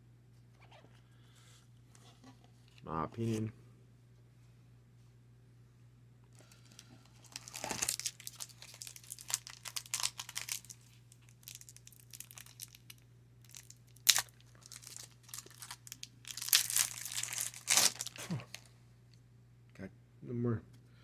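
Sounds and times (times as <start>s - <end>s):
foil wrapper tearing and crinkling: 6.5s - 18.7s.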